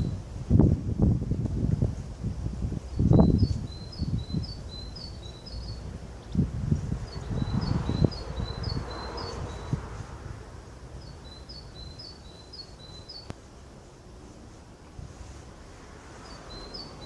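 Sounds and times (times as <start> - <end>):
small bird chirping: 2.9 - 9.9, 11.0 - 13.4, 16.2 - 17.0.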